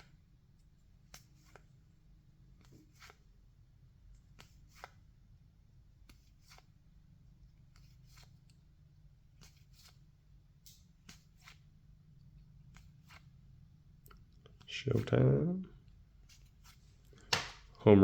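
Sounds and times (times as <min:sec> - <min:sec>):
low steady hum: 0:00.0 - 0:18.0
cards flipped clicks and swishes: 0:01.0 - 0:01.7, 0:02.6 - 0:03.2, 0:04.3 - 0:05.1, 0:06.0 - 0:06.8, 0:07.7 - 0:08.6, 0:09.3 - 0:11.7, 0:12.7 - 0:13.3, 0:16.2 - 0:17.8.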